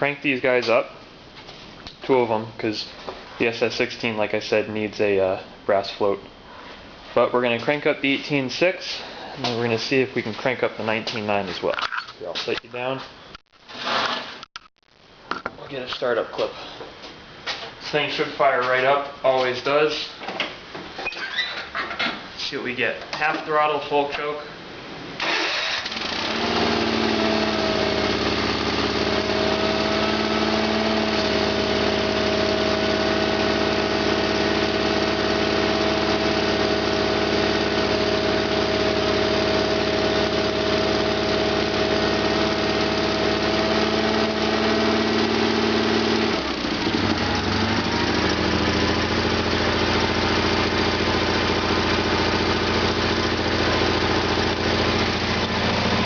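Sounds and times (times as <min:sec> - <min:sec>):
garden tractor engine running: 0:25.2 - 0:56.0.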